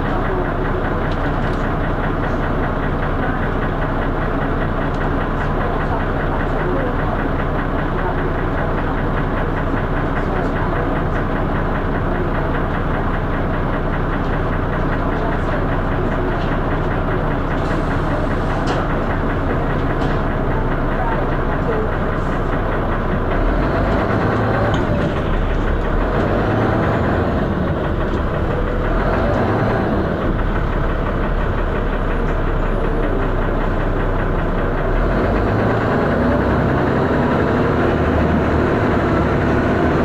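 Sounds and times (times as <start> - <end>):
bus diesel engine knocking: 0.0 - 40.0.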